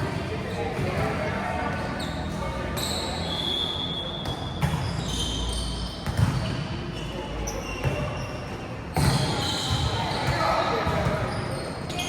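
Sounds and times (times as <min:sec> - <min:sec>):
ball bouncing on indoor court: 0:04.2 - 0:08.2, 0:08.8 - 0:12.0.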